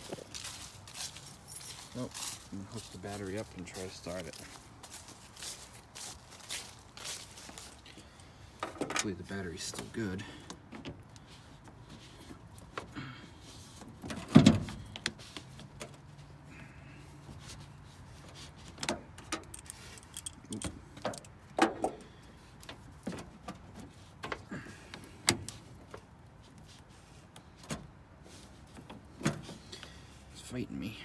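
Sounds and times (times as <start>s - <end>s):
metallic clicks of hand tools: 19.3s - 21.4s.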